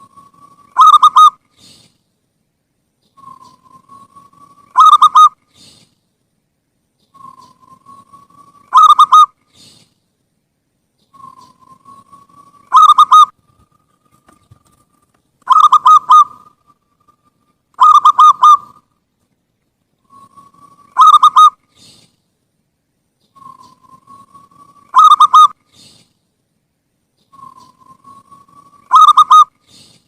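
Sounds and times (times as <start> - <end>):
dove cooing song: 0.0 - 1.4, 3.2 - 5.7, 7.1 - 9.7, 11.1 - 14.8, 15.4 - 17.2, 17.8 - 18.9, 20.0 - 21.9, 23.3 - 26.0, 27.2 - 29.9.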